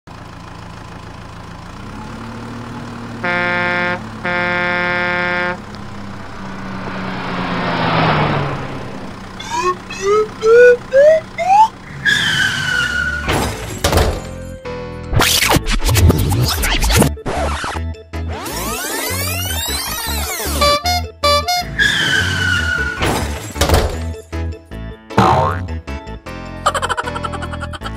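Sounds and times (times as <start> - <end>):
cartoon horn honks: 3.2 - 6.6, 20.3 - 21.9, 25.2 - 25.8
falling tone: 5.5 - 11.8
short rising chirps: 5.6 - 11.8
whoosh: 5.7 - 10.0.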